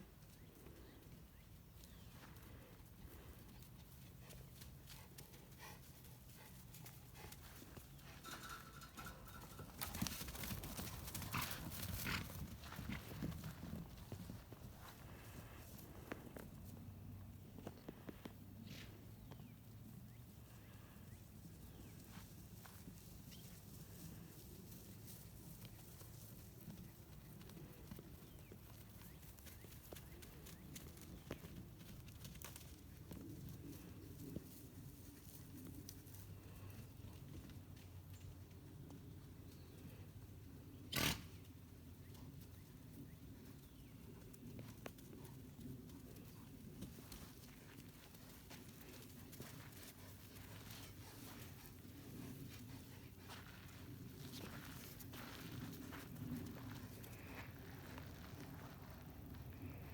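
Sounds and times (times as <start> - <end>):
hooves thudding on ground: 0.0 - 19.5, 20.4 - 59.9
hoof clicks and thuds: 6.8 - 16.5.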